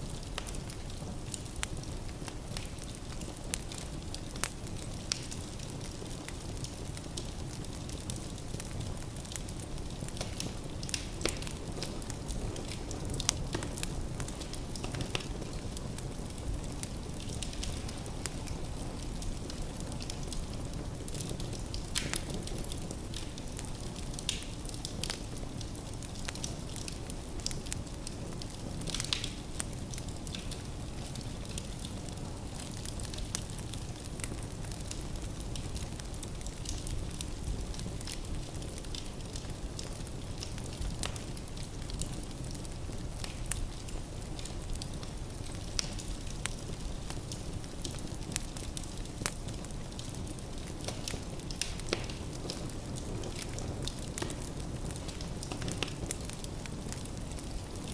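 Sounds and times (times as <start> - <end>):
low rumble of flames: 0.0 - 57.9
logs crackling and popping: 0.1 - 57.9.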